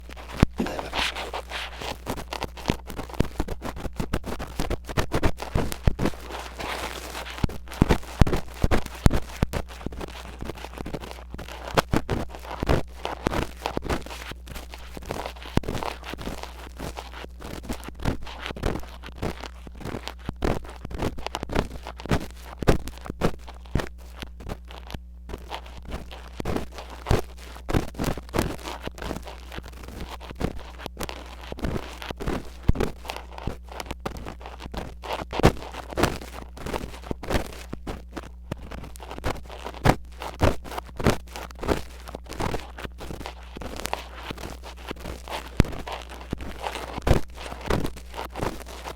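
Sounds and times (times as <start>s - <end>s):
low steady hum: 0.0s - 1.9s
metal pick scraping a microphone: 0.0s - 3.1s, 23.4s - 48.9s
low electrical hum: 0.0s - 48.9s.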